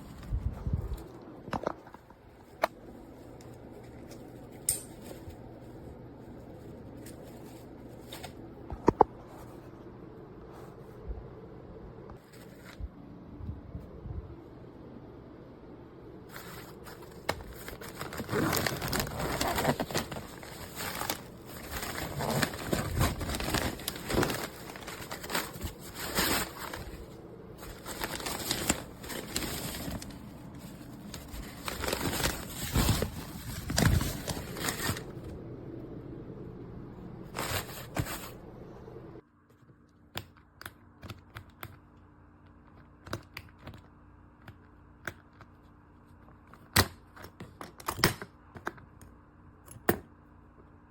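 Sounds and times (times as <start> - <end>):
packaging crinkling and rustling: 0.0 - 8.6, 16.3 - 35.3, 37.3 - 38.4
faint steady hum: 0.0 - 50.9.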